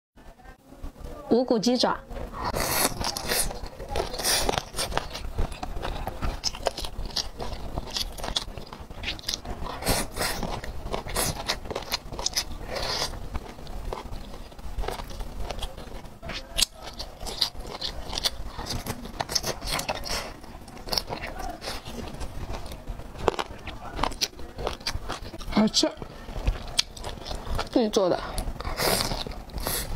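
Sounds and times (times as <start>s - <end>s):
crunchy bites: 2.4s - 25.7s, 26.4s - 29.9s.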